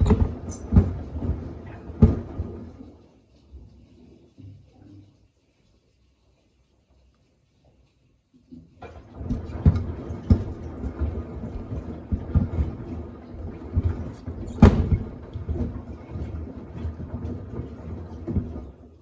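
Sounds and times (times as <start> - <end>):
washing machine drum turning: 0.0 - 2.9, 8.8 - 19.0.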